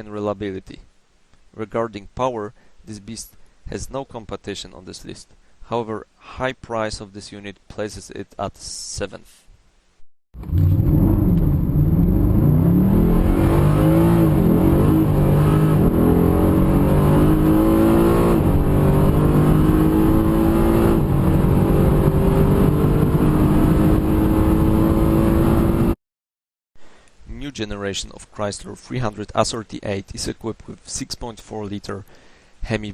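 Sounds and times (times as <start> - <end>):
car engine revving: 10.4 - 26.0.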